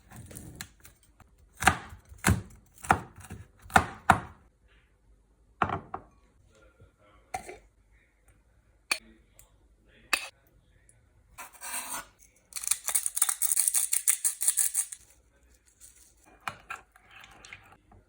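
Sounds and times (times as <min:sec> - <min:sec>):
knife chopping on cutting board: 0:01.6 - 0:04.4.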